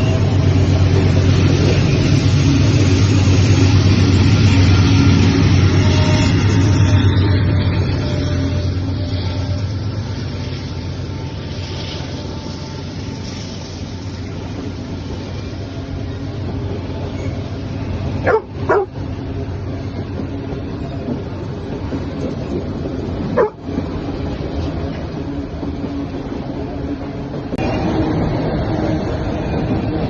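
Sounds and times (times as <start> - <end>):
freight train rumbling: 0.0 - 30.0
dog barking: 18.2 - 18.9, 23.4 - 23.6.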